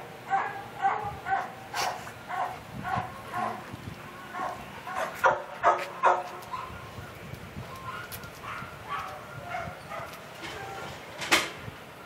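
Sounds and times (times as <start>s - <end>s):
dog barking: 0.3s - 3.6s, 4.3s - 6.8s, 7.9s - 10.8s
dog high calls: 0.3s - 6.9s, 7.7s - 10.9s.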